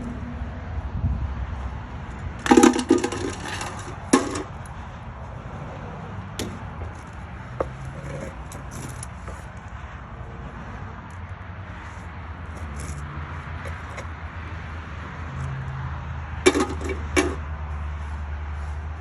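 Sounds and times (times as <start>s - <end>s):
hard metal clanks: 2.4s - 4.8s, 6.4s - 9.5s, 16.4s - 17.5s.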